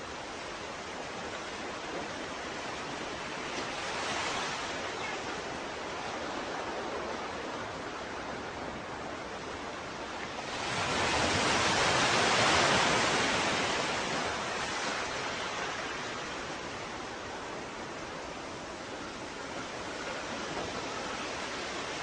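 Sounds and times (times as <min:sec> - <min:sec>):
surf washing on shore: 0:00.0 - 0:22.0.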